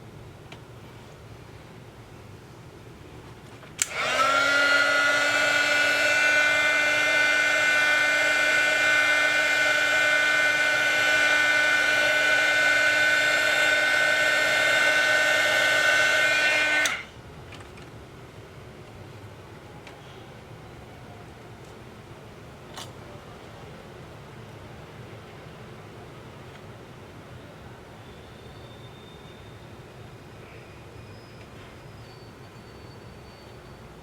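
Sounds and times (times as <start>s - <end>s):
hot-air gun whirring: 3.8s - 17.2s.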